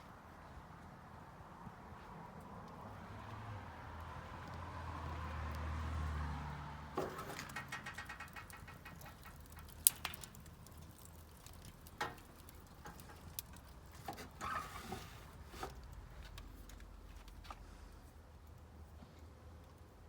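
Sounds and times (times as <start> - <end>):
fire crackling and popping: 7.0 - 17.4.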